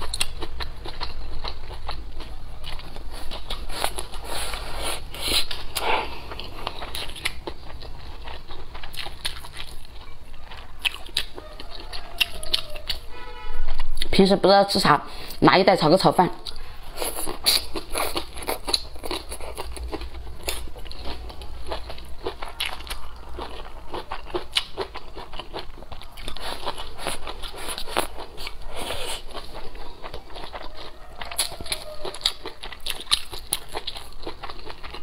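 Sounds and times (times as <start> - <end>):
biting and chewing: 0.0 - 14.2, 16.4 - 35.0.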